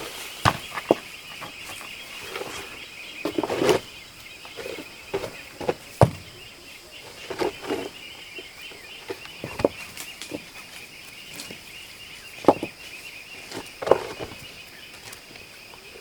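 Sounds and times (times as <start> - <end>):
insects chirring: 0.0 - 16.0
knocks and thuds: 0.4 - 1.9, 5.1 - 6.4.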